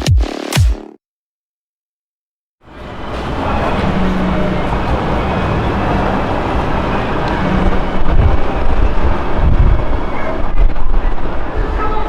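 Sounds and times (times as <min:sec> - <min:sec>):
wind buffeting microphone: 0:04.7 - 0:12.0.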